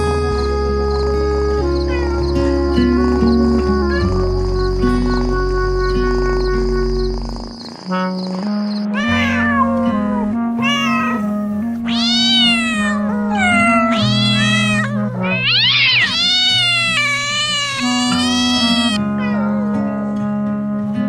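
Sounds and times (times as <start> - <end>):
background music: 0.0 - 21.0
cat meowing: 1.8 - 2.4, 3.8 - 4.3, 8.9 - 19.8.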